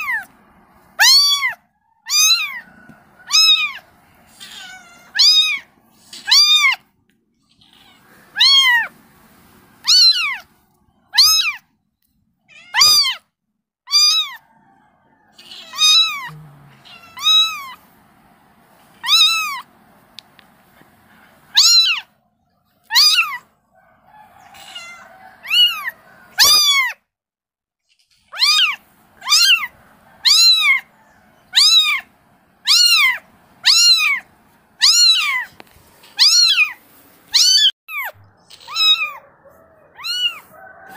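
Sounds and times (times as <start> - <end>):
kitten meowing: 1.0 - 2.6, 3.2 - 6.8, 7.5 - 8.9, 9.8 - 10.5, 11.1 - 11.6, 12.5 - 13.2, 13.9 - 14.4, 15.4 - 17.8, 19.0 - 19.7, 21.5 - 22.1, 22.9 - 23.4, 24.5 - 27.0, 28.0 - 30.9, 31.5 - 35.5, 36.1 - 40.5.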